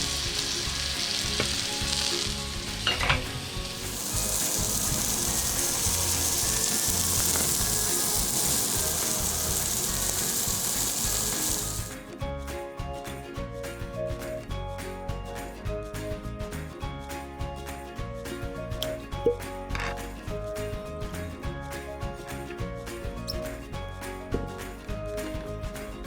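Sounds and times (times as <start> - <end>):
steak sizzling in frying pan: 0.0 - 11.9
music: 0.0 - 26.0.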